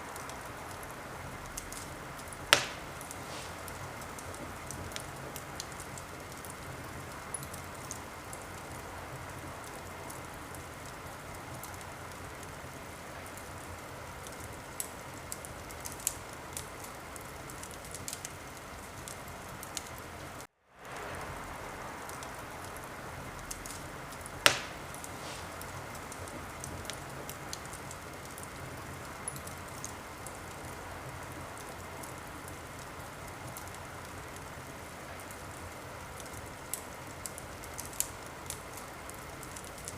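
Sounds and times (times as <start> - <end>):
wood fire crackling: 0.0 - 39.9
loud sharp crack: 2.5 - 4.3, 23.5 - 26.3.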